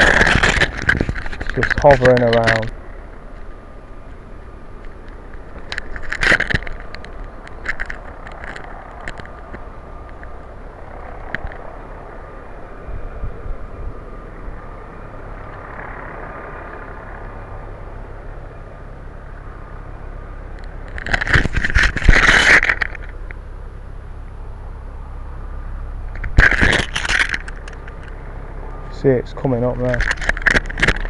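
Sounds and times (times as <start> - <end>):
microphone handling noise: 0.0 - 2.7
distant helicopter drone: 0.0 - 31.0.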